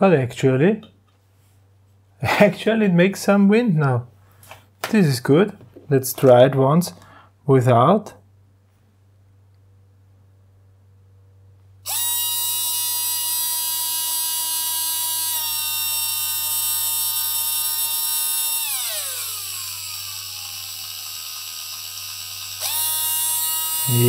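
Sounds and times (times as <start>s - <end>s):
electric motor whine: 11.8s - 24.0s.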